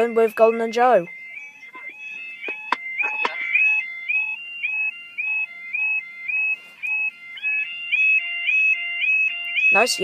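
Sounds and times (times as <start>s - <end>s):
level crossing alarm warbling: 0.0s - 10.0s
sharp knocks: 1.8s - 3.6s.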